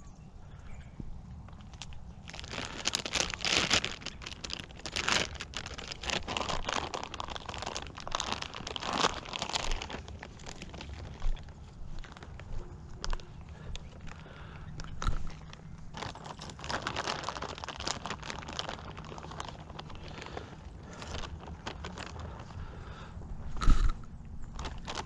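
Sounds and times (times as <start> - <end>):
crinkling and crunching handling noise: 1.0 - 25.0.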